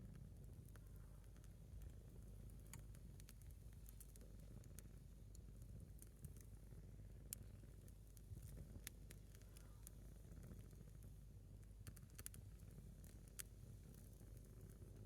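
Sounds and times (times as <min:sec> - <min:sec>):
burning log crackling: 0:07.4 - 0:15.0.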